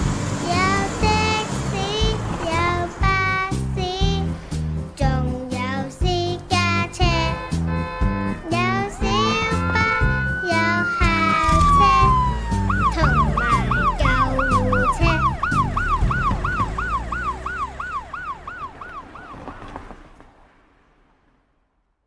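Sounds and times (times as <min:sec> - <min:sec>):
song music: 0:00.0 - 0:18.1
siren yelping: 0:07.7 - 0:19.8.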